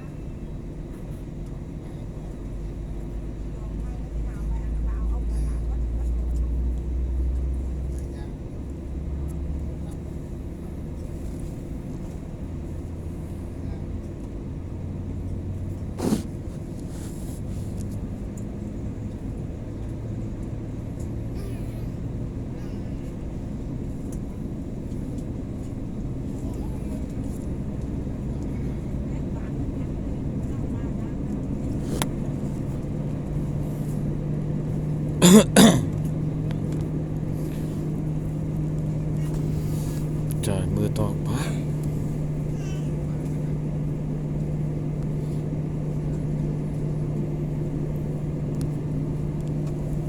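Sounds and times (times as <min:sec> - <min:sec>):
airliner cabin rumble: 0:00.0 - 0:50.0
person coughing: 0:35.2 - 0:36.0.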